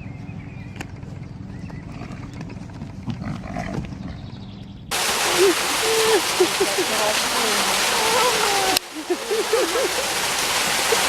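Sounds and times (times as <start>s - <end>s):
steady hiss: 4.9s - 11.0s.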